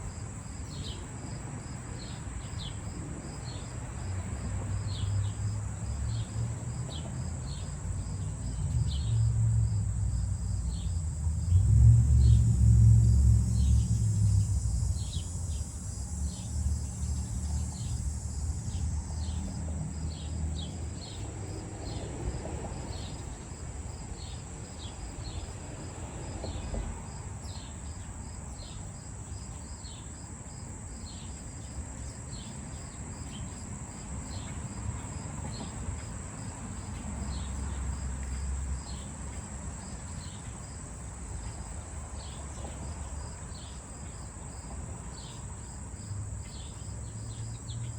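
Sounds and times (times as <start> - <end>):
insect trill: 0.0 - 47.9
low rumble: 8.6 - 19.0.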